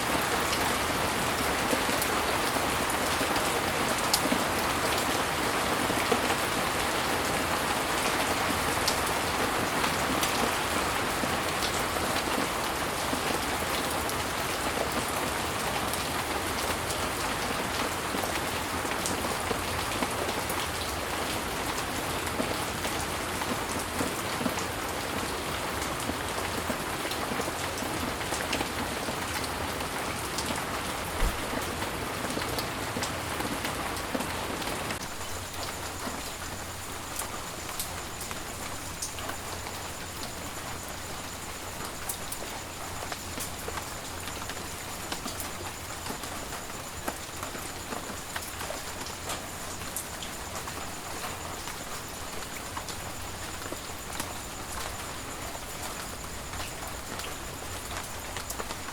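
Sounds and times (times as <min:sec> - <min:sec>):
steady rain hiss: 0:00.0 - 0:58.9
low knock: 0:31.2 - 0:31.6.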